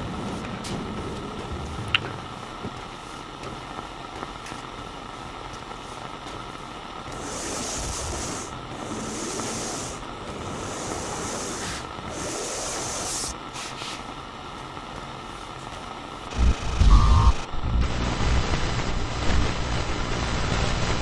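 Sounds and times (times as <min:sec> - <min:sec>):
walkie-talkie static hissing: 0:00.0 - 0:20.9.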